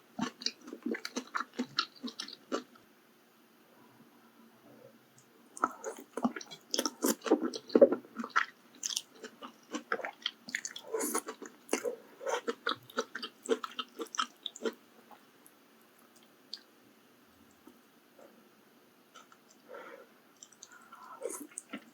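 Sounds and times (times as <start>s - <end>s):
close-miked chewing: 0.2s - 2.8s, 5.5s - 16.7s, 19.1s - 21.9s.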